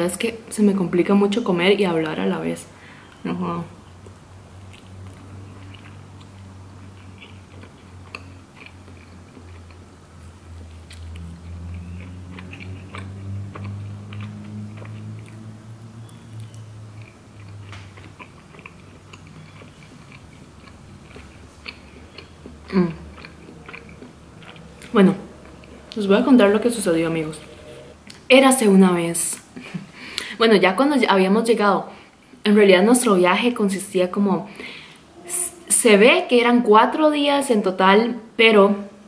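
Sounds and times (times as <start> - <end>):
low steady hum: 0.0 - 39.0
chewing and biting: 4.0 - 26.0.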